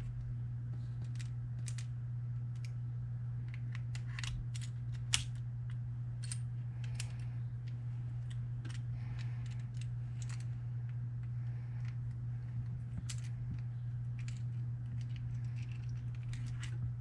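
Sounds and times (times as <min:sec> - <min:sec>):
steady low hum: 0:00.0 - 0:17.0
small metal parts clicking: 0:01.0 - 0:01.9, 0:03.5 - 0:10.6, 0:12.9 - 0:13.4, 0:14.1 - 0:16.8.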